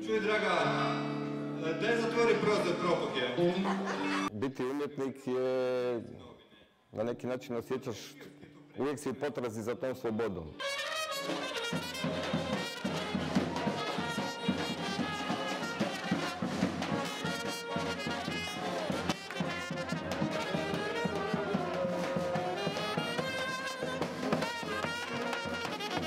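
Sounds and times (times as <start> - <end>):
brass band playing: 10.6 - 26.0
trumpets and horns playing a tune: 10.6 - 26.0
steady beat: 11.2 - 26.0.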